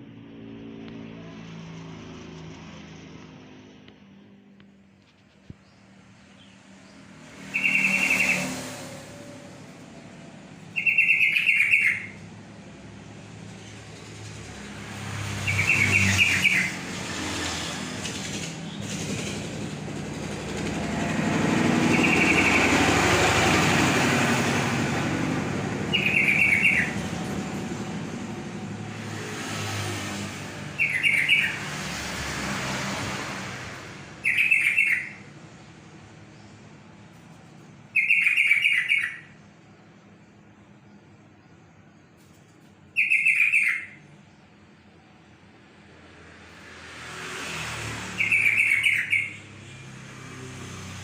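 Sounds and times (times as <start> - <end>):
passing vehicle: 0.0 - 39.4, 42.2 - 51.0
bulbul singing: 6.3 - 8.6, 10.6 - 12.3, 15.2 - 16.8, 21.7 - 24.2, 25.5 - 27.5, 30.7 - 31.6, 34.2 - 35.3, 37.9 - 39.4, 42.9 - 44.4, 48.2 - 49.8.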